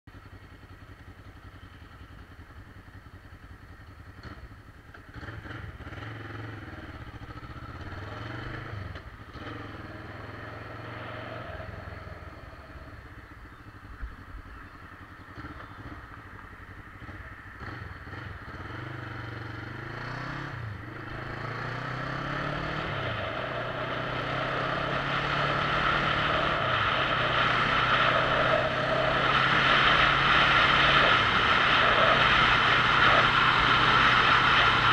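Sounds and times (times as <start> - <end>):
motorcycle engine revving: 0.2 - 34.9
rushing wind noise: 22.9 - 34.9.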